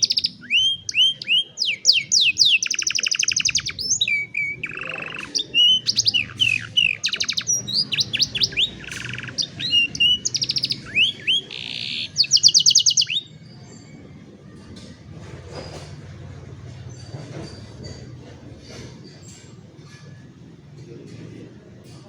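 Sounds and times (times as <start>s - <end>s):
canary singing trills: 0.0s - 14.5s
low background hum: 0.0s - 22.0s.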